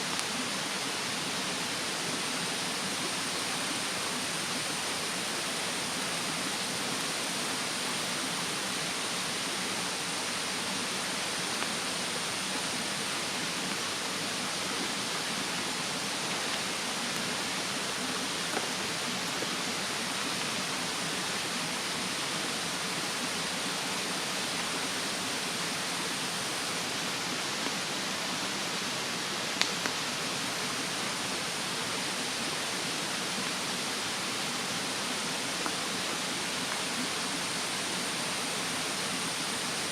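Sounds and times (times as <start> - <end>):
mountain stream rushing: 0.0 - 39.9
campfire crackling: 11.4 - 19.5, 29.5 - 30.2.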